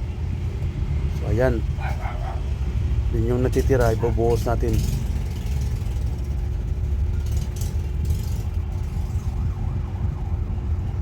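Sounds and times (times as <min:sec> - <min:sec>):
traffic rumble: 0:00.0 - 0:11.0
faint wailing siren: 0:08.3 - 0:11.0.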